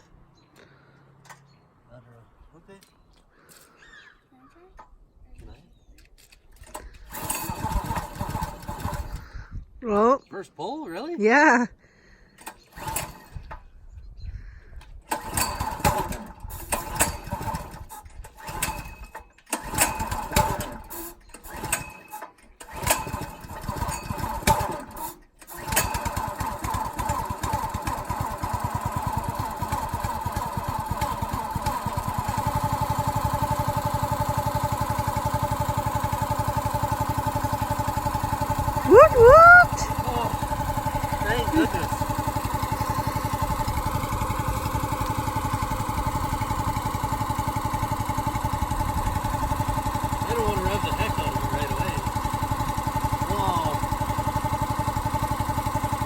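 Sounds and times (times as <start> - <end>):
small gasoline engine sputtering: 6.6 - 9.5, 12.3 - 13.6, 15.0 - 56.0.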